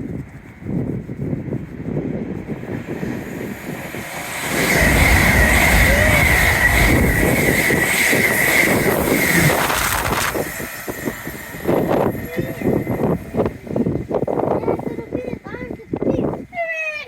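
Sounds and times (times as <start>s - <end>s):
high whine: 0.1s - 15.1s
passenger train passing: 1.6s - 15.2s.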